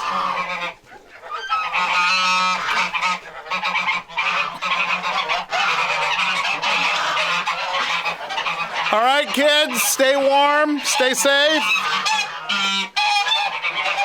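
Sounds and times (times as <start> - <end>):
geese honking: 0.0 - 14.0.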